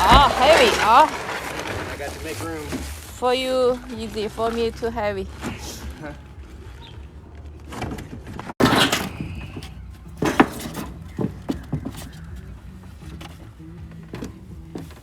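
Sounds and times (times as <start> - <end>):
objects clattering and knocking: 0.0 - 3.0, 5.3 - 15.0
sharp knocks and rattles: 7.3 - 15.0.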